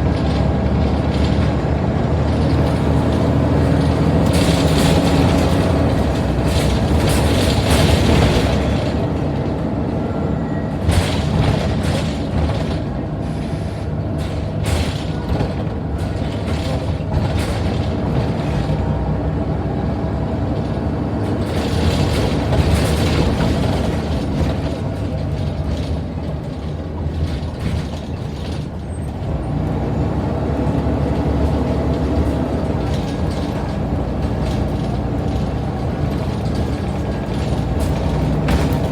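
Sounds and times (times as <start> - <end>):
bus diesel engine humming: 0.0 - 38.9
bodywork clicks and rattles: 2.5 - 9.6, 20.6 - 29.8, 30.6 - 38.9.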